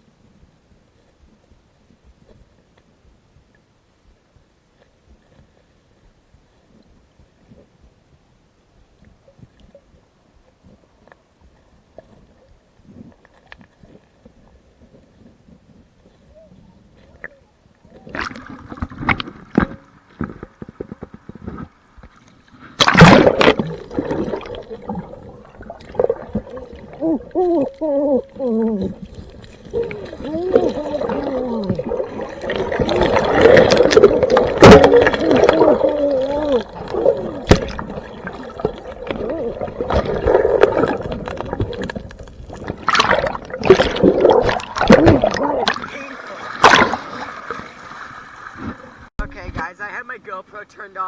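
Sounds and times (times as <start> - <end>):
water splashing around a kayak: 0.0 - 49.2
loud splash: 22.8 - 27.0, 29.7 - 41.9, 42.8 - 48.9
person speaking: 27.0 - 29.0, 29.7 - 33.2, 45.0 - 46.5, 49.2 - 51.0.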